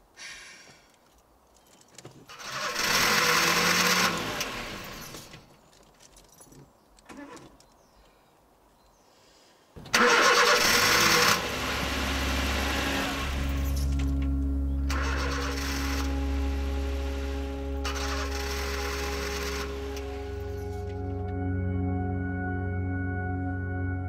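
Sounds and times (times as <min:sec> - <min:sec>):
car engine cranking on starter: 0:02.3 - 0:05.5, 0:09.9 - 0:21.3
car engine idling: 0:10.0 - 0:21.3.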